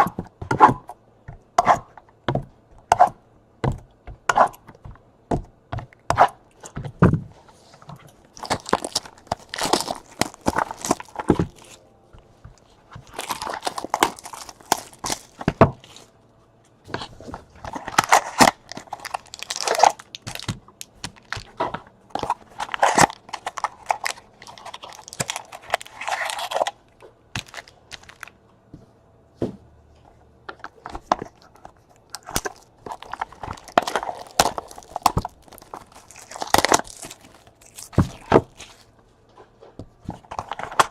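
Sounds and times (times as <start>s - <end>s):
packaging crinkling and tearing: 8.2s - 11.8s, 12.9s - 16.1s, 16.9s - 28.4s, 30.7s - 39.0s, 40.1s - 40.9s.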